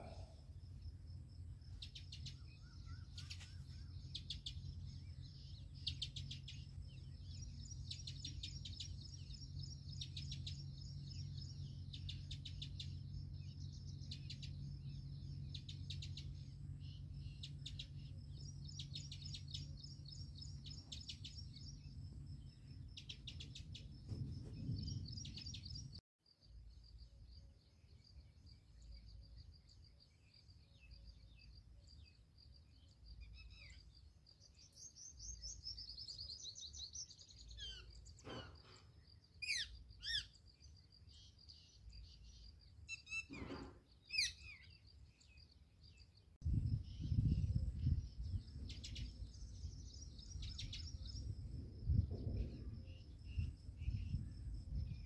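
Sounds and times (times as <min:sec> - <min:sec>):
steady low hum: 0:00.0 - 0:26.0
small birds chirping: 0:00.0 - 0:55.0.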